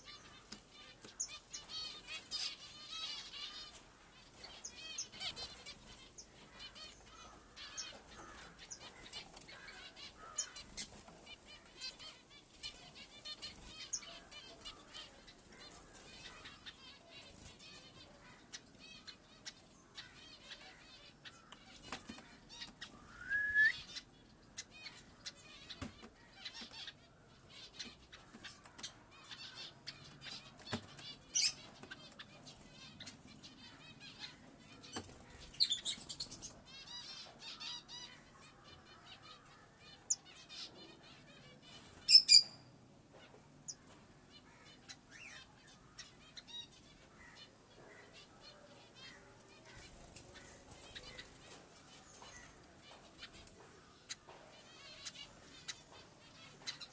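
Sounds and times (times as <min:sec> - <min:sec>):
pet birds chirping: 0:00.0 - 0:56.9
shrill bird calls: 0:22.5 - 0:24.1, 0:42.0 - 0:42.7
rising bird whistle: 0:23.1 - 0:23.9.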